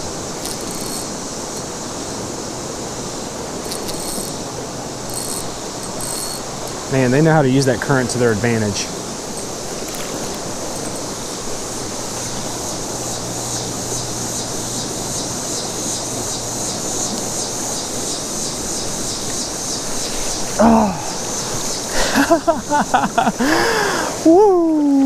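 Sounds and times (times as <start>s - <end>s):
creek current rushing: 0.0s - 24.2s
high even pulsing: 3.6s - 19.0s.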